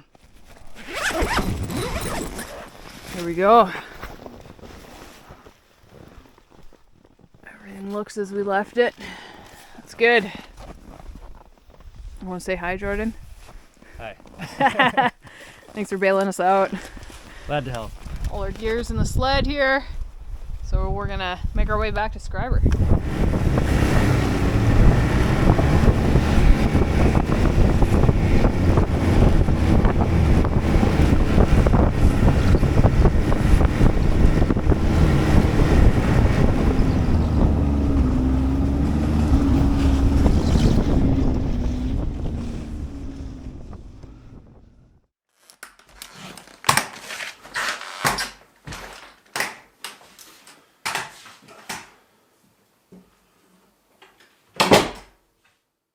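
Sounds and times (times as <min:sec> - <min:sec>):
snowmobile engine droning: 0:22.7 - 0:44.6.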